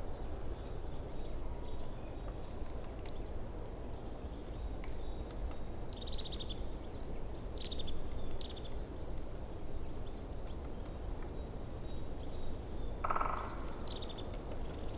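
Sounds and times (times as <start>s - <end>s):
small birds chirping: 3.1s - 14.9s.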